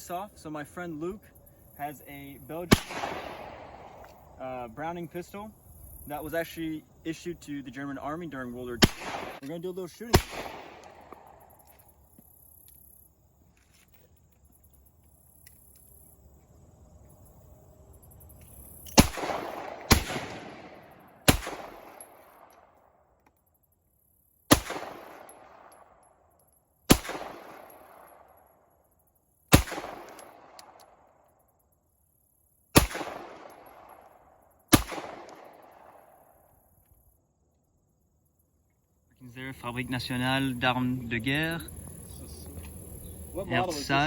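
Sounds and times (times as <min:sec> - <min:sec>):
pistol shots with echo: 0:02.6 - 0:04.0, 0:08.8 - 0:11.5, 0:18.9 - 0:22.7, 0:24.5 - 0:25.9, 0:26.9 - 0:28.4, 0:29.5 - 0:31.0, 0:32.8 - 0:34.1, 0:34.7 - 0:36.3.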